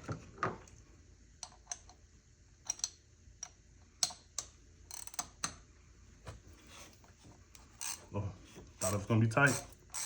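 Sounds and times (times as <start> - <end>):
faint steady hum: 0.0 - 10.0
ratchet metallic clicks: 8.8 - 10.0.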